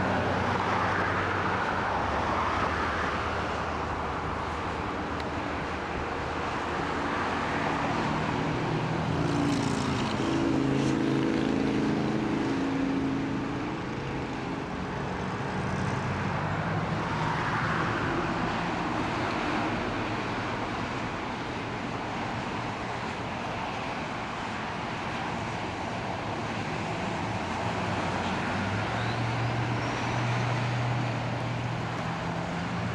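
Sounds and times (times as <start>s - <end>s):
freeway traffic noise: 0.0s - 32.9s
passing vehicle engine: 6.5s - 21.6s.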